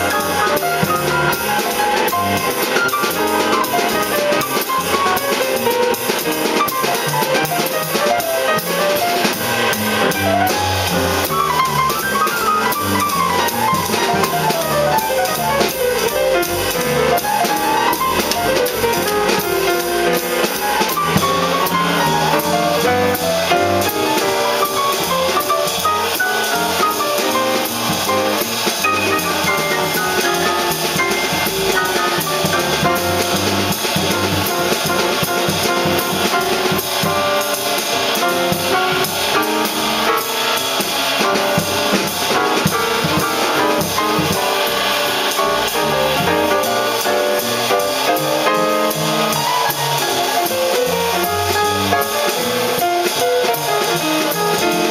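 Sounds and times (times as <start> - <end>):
bass: 0.0 - 54.9
drum kit: 0.0 - 54.9
jazz quartet playing: 0.0 - 54.9.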